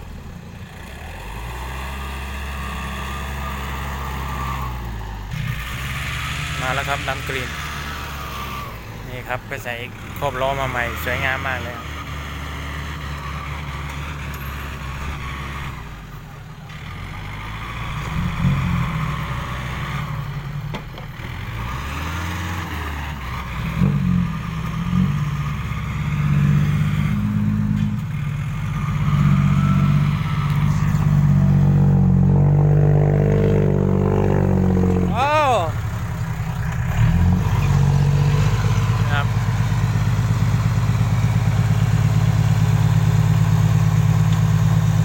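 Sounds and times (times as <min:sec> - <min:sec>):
truck diesel engine revving: 0:00.0 - 0:45.0.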